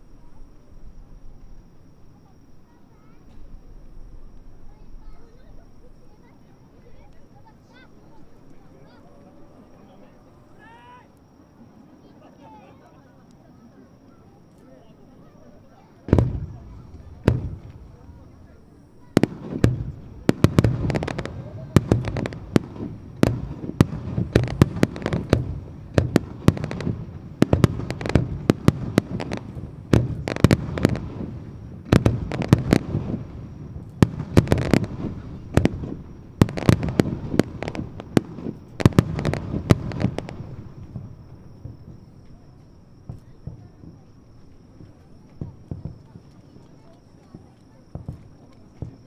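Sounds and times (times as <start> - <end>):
firework bangs: 16.0 - 42.2, 44.8 - 46.2
rumble of echoing explosions: 16.1 - 42.1.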